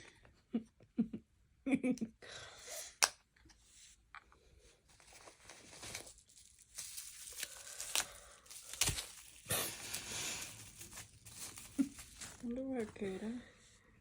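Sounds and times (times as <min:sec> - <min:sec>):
packaging crinkling and tearing: 0:05.0 - 0:13.2.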